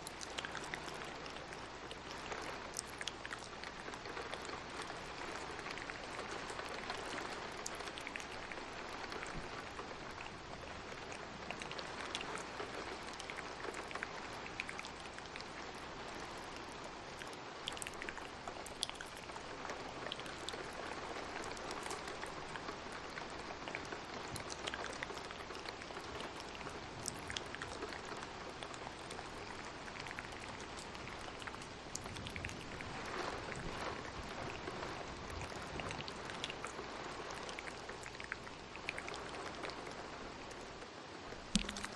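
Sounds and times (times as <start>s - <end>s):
rain falling: 0.0s - 41.9s
sharp little clicks and pops: 40.5s - 41.9s.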